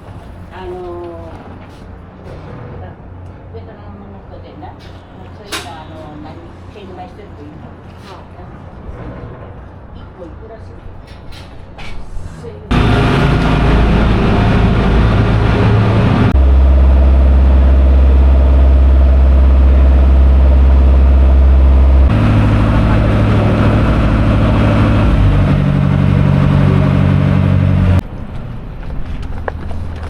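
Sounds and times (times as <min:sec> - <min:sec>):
ferry engine humming: 0:12.6 - 0:30.0.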